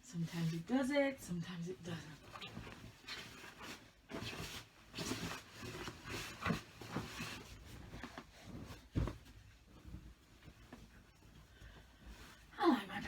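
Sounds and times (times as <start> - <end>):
fabric bedding rustling: 0.1 - 13.0
soft thumps: 6.8 - 10.9.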